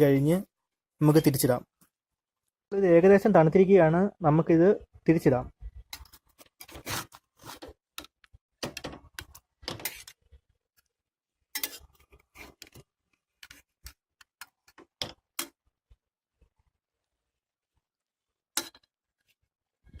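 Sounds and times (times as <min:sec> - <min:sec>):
utensil scraping frying pan: 0:09.7 - 0:10.3, 0:11.5 - 0:12.8.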